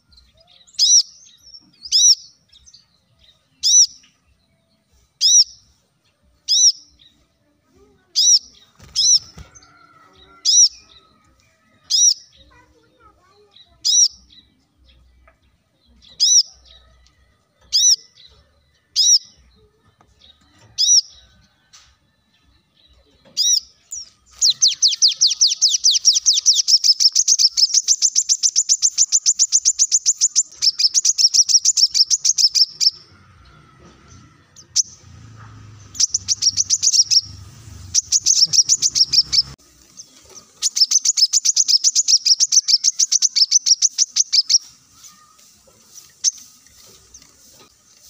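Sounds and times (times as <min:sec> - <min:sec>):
sharp high bird chips: 0:23.4 - 0:33.1, 0:35.8 - 0:48.0
rapid bird trill: 0:24.3 - 0:33.1, 0:35.9 - 0:39.6, 0:40.6 - 0:45.2.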